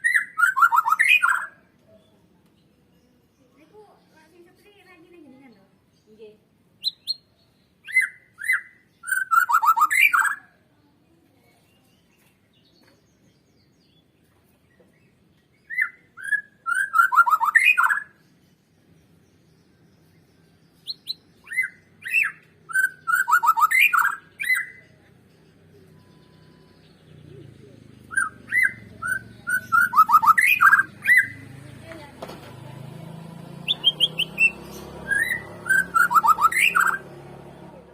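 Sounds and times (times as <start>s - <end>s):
songbird singing whistled notes: 0.0s - 3.6s, 6.8s - 10.6s, 11.7s - 31.6s, 33.5s - 37.8s.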